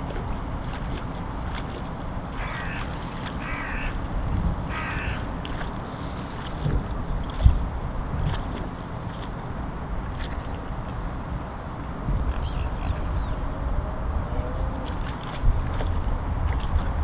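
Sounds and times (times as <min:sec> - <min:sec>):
steady low rumble: 0:00.0 - 0:17.0
harsh bird calls: 0:02.4 - 0:04.1, 0:04.7 - 0:05.3.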